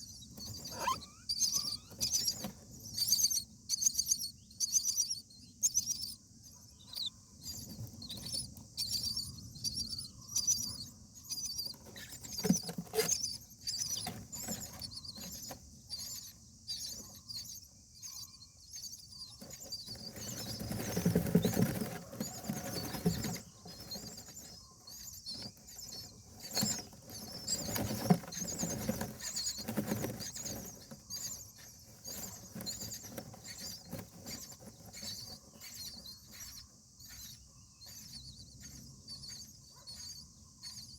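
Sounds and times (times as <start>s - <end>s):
rustling in nest: 0.0s - 3.4s, 7.4s - 17.5s, 19.2s - 39.5s
nestlings cheeping: 0.0s - 6.2s, 6.8s - 40.9s.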